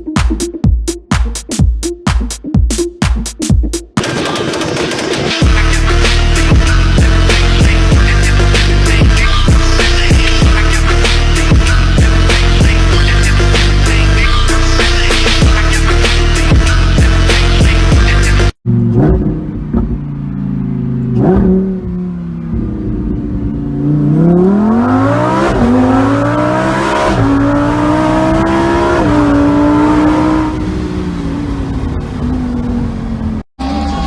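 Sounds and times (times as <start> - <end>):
car engine revving and accelerating: 4.0 - 32.8.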